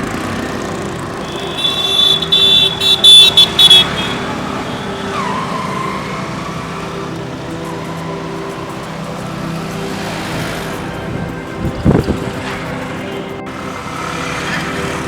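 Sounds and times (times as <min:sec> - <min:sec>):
street traffic: 0:00.0 - 0:15.0
vehicle horn blasts: 0:01.2 - 0:08.4.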